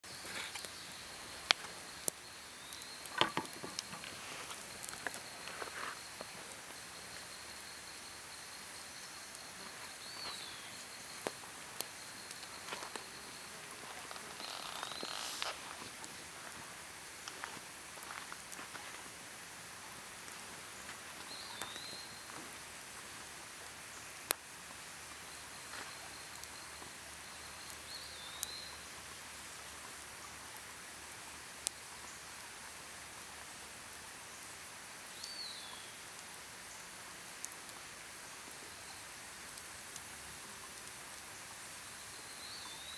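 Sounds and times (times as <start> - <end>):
campfire crackling and popping: 0.0 - 34.2, 36.0 - 36.6, 37.2 - 42.0
outdoor hiss: 0.0 - 42.9
high insect drone: 0.1 - 15.8.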